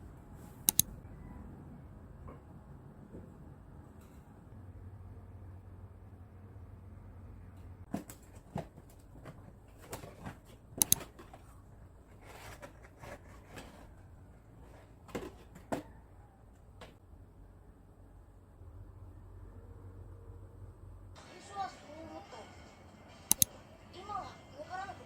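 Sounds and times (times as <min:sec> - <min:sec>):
clicks and knocks of objects handled: 0:07.9 - 0:17.0
low steady hum: 0:08.5 - 0:21.3.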